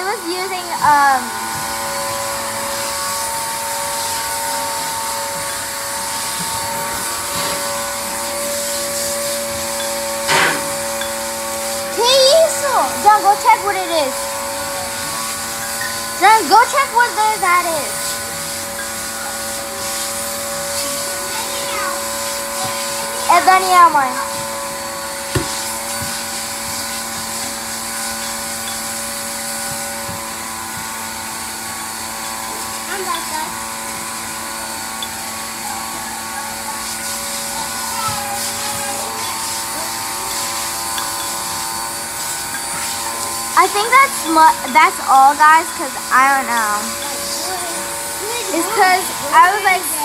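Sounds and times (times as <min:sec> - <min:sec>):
appliance motor whirring: 0:00.0 - 0:50.0.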